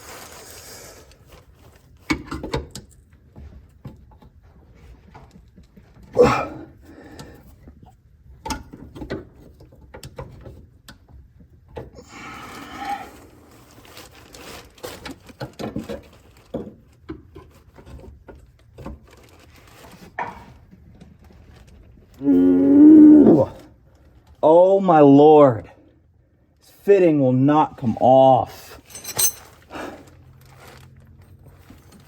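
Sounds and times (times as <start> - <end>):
person groaning with effort: 6.2 - 6.7, 22.2 - 23.6
hand tools clicking and knocking: 28.7 - 29.5.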